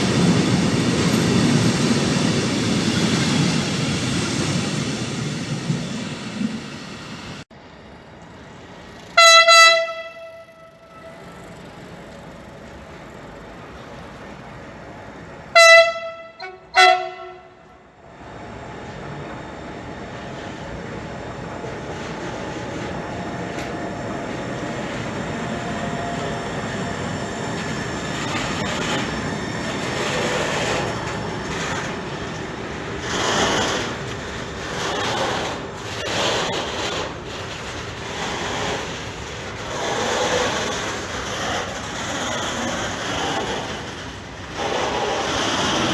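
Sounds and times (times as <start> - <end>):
approaching train running noise: 0.0 - 45.9
locomotive horn blasts: 9.2 - 11.4, 15.5 - 17.7.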